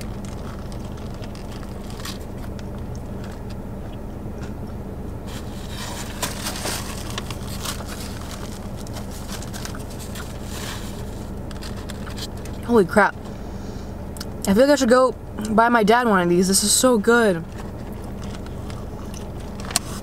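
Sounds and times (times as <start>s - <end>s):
paper bag crackling: 0.0s - 3.5s, 5.3s - 12.6s
chewing crispy food: 0.0s - 4.7s, 5.3s - 12.6s, 17.4s - 20.0s
low car hum: 0.0s - 20.0s.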